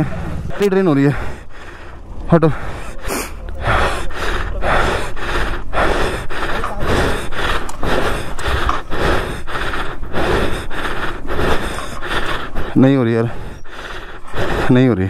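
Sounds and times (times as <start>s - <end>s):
motorcycle engine chuffing: 0.0s - 8.5s.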